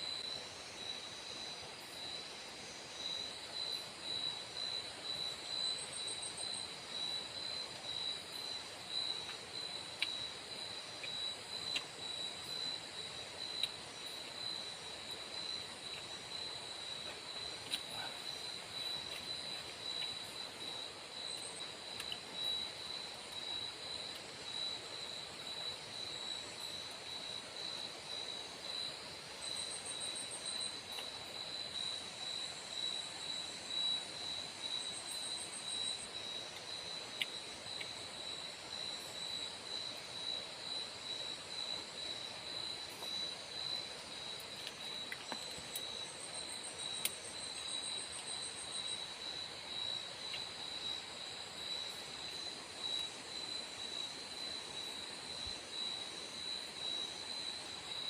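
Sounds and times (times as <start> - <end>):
background hiss: 0.0 - 58.0
insects droning: 0.0 - 58.0.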